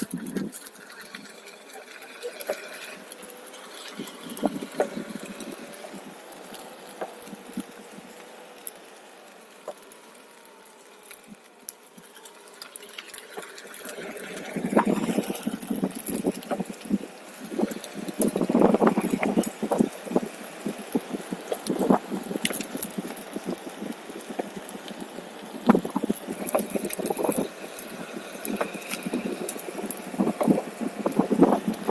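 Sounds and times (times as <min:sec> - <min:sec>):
electric board rolling on trail: 0:00.0 - 0:31.9
faint wavering whine: 0:00.0 - 0:31.9.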